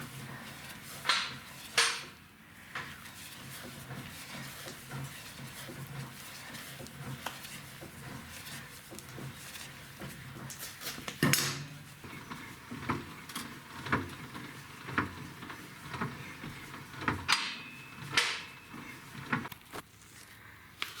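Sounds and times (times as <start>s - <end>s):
tools and parts clinking: 10.5s - 11.8s
tools clattering: 10.5s - 11.9s.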